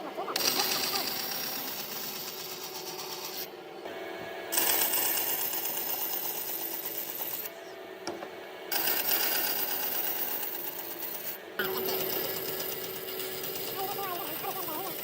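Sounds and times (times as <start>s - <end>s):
power tool rattling on wood: 8.8s - 15.0s.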